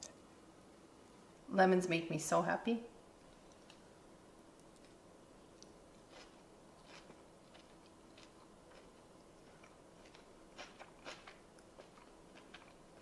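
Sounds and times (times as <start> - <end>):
person chewing: 4.8 - 13.0.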